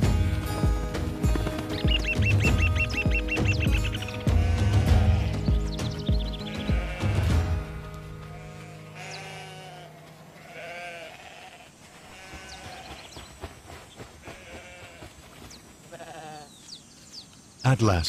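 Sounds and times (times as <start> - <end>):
low music drone: 0.0 - 10.4
birds calling: 0.0 - 18.0
high falling bird chirps: 1.4 - 4.6.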